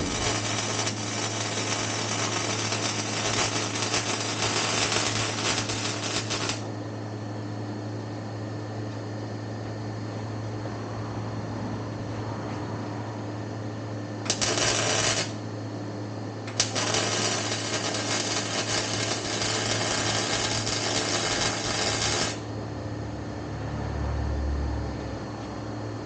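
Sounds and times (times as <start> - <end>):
low hum: 0.0 - 6.6, 9.9 - 26.0
welder crackling: 0.0 - 6.7, 14.2 - 15.5, 16.5 - 22.5.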